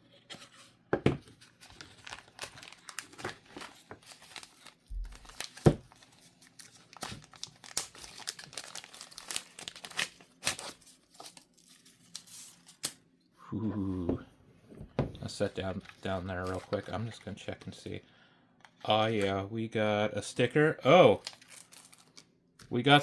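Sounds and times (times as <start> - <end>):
packaging crinkling and tearing: 1.4 - 13.0, 20.9 - 22.3.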